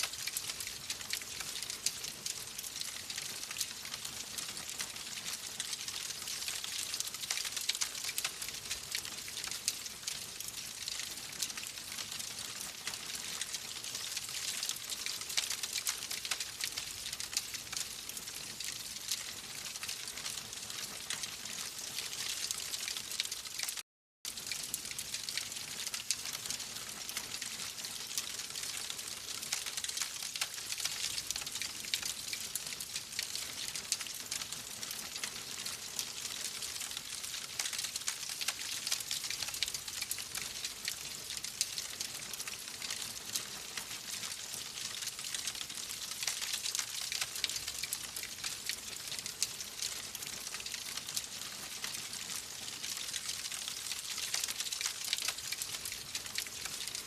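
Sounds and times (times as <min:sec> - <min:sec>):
wood fire crackling: 0:00.0 - 0:18.2, 0:52.9 - 0:56.5.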